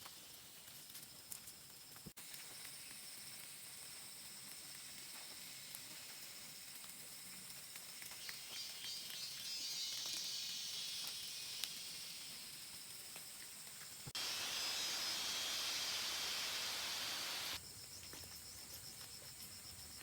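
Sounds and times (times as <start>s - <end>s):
high-pitched insect drone: 14.2s - 17.6s.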